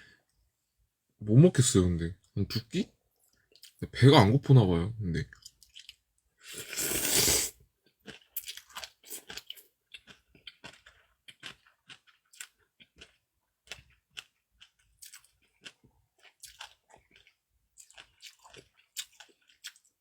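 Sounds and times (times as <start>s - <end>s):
person chewing food: 3.2s - 3.8s, 5.3s - 20.0s.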